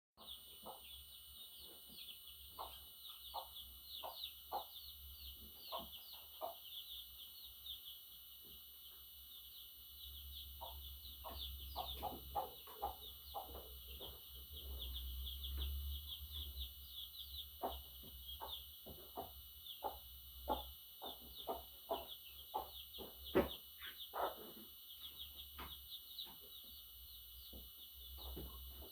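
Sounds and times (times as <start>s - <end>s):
budgerigar chattering: 17.6s - 24.6s.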